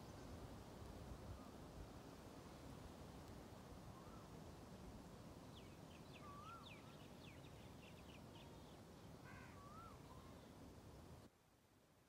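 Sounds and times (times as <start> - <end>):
low background hiss: 0.0 - 12.0.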